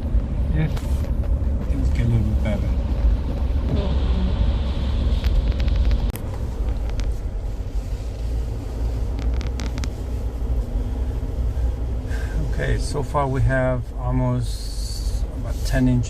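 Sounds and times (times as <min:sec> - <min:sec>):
vehicle rumble from inside cabin: 0:00.0 - 0:16.0.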